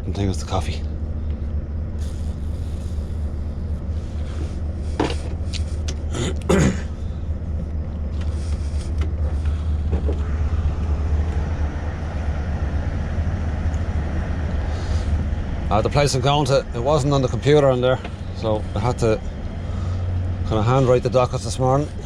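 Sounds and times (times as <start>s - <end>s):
truck engine low drone: 0.0s - 22.0s.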